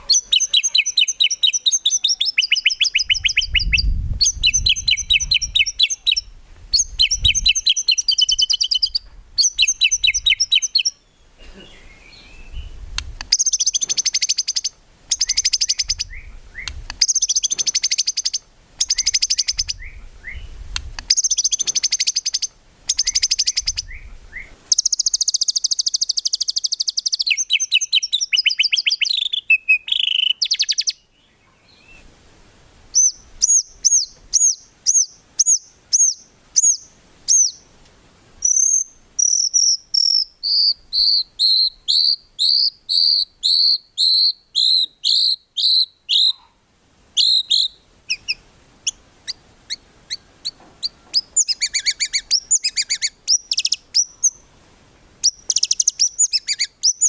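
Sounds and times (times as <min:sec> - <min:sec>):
bird singing rapid high notes: 0:00.0 - 0:11.1, 0:11.8 - 0:31.0, 0:38.4 - 0:46.4, 0:47.2 - 0:49.4.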